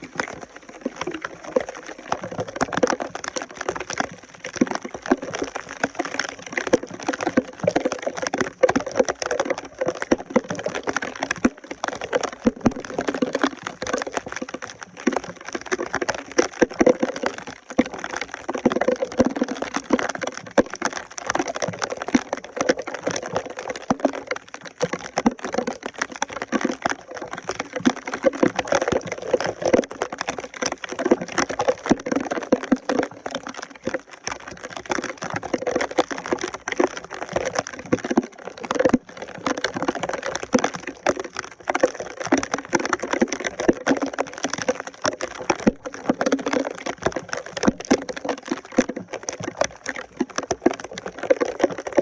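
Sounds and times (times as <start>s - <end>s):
water gurgling and splashing: 0.0s - 52.0s
wet debris crackling: 0.0s - 52.0s.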